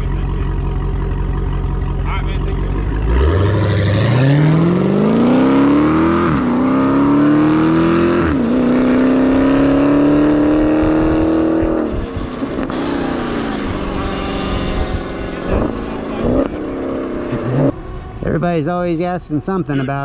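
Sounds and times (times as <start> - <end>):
electric dirt bike motor whine: 11.9 - 15.6.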